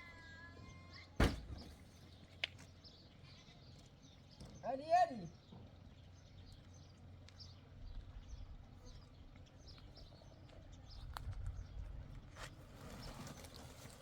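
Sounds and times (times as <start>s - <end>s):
small birds chirping: 0.1s - 14.0s
low rumble of wind: 5.3s - 14.0s.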